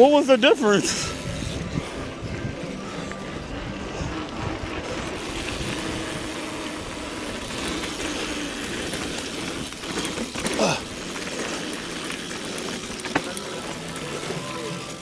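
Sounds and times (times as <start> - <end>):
bike tyres on dirt trail: 0.0 - 15.0
wind rushing: 0.8 - 7.9.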